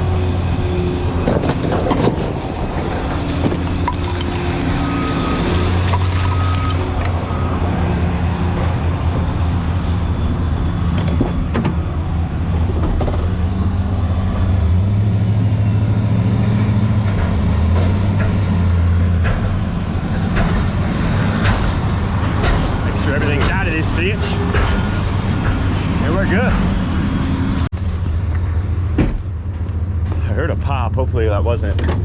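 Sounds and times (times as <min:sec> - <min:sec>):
heavy vehicle engine droning: 0:00.0 - 0:32.0
knocks and clatters: 0:01.2 - 0:07.2, 0:16.9 - 0:27.0.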